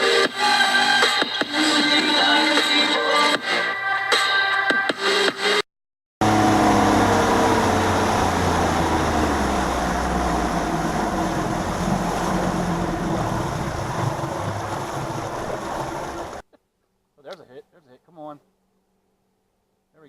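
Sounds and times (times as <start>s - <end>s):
outboard motor running: 6.2s - 16.4s
water noise: 6.2s - 16.5s.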